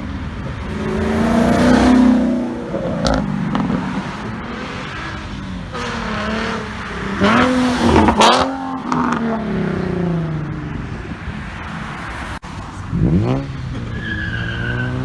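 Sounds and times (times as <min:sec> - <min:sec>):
sharp exhaust crack: 0:00.4 - 0:09.4
car accelerating past: 0:00.5 - 0:15.0.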